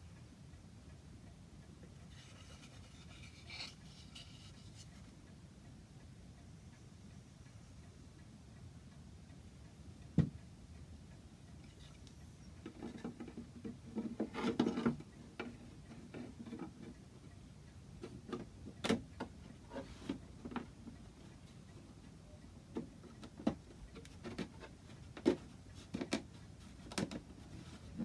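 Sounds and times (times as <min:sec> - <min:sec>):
scraping and rubbing: 0:02.1 - 0:05.1
knocks and taps on wood: 0:10.2 - 0:10.4.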